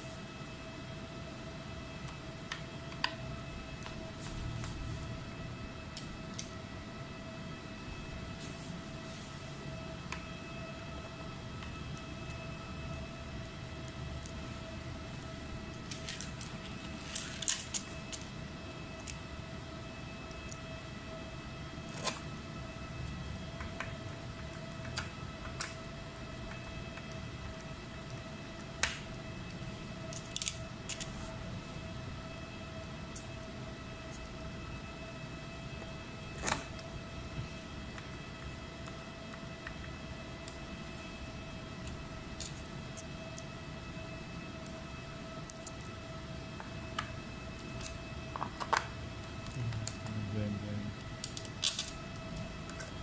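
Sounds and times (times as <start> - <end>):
faint steady tone: 0.0 - 53.0
steady hum: 0.0 - 53.0
low hum: 49.0 - 53.0.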